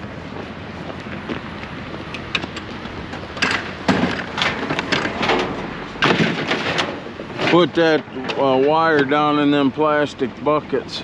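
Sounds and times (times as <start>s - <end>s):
clattering knocks and rattles: 1.6s - 9.1s.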